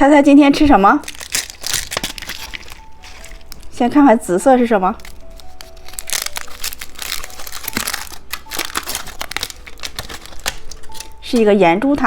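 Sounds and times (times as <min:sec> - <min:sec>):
candy wrapper crinkling: 0:00.5 - 0:11.5.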